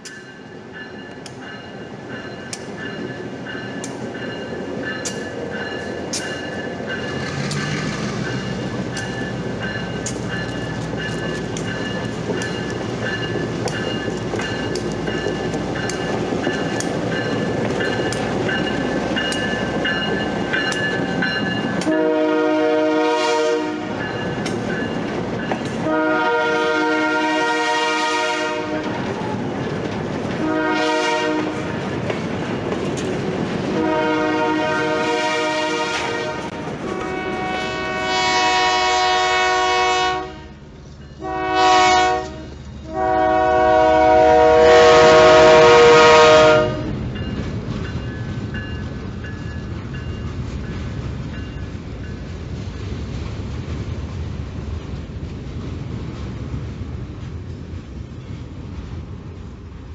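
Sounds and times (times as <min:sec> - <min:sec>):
train wheels clicking over rail joints: 0:00.0 - 0:22.2, 0:23.8 - 0:26.6, 0:28.5 - 0:37.2, 0:46.8 - 0:59.9
diesel locomotive engine running: 0:00.0 - 0:59.9
train horn blasts: 0:21.8 - 0:24.0, 0:25.8 - 0:29.0, 0:30.4 - 0:31.8, 0:33.8 - 0:40.6, 0:41.2 - 0:47.0.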